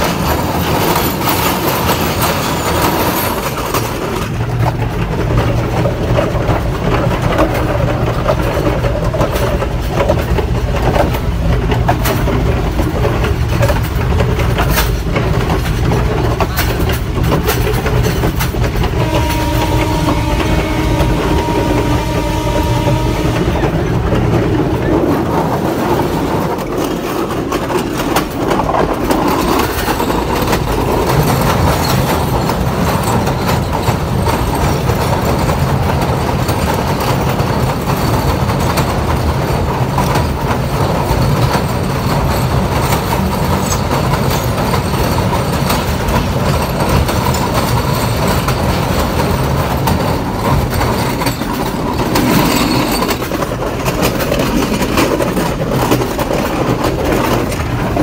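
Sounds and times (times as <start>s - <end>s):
diesel train engine rumble: 0.0s - 58.0s
wheels clicking over rail joints: 0.0s - 58.0s
train horn: 18.8s - 24.4s.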